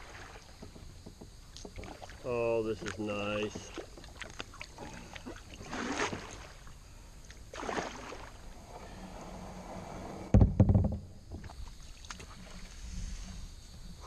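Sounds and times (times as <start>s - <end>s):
paddle swishing through water: 0.0s - 10.3s, 11.4s - 14.0s
loud low bumps: 8.6s - 11.4s.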